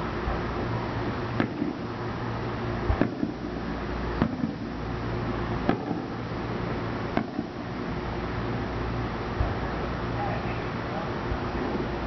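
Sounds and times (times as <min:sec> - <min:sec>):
firework booms: 0:01.4 - 0:01.9, 0:02.8 - 0:04.8, 0:05.6 - 0:06.2, 0:07.1 - 0:07.7.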